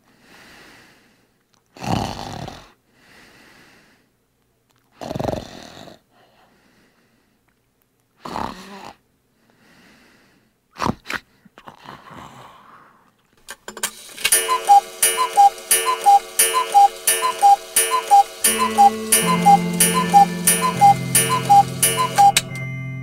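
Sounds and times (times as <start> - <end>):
sharp clicks: 14.2 - 22.6
clock ticking: 14.3 - 22.7
low steady tone: 14.3 - 23.0.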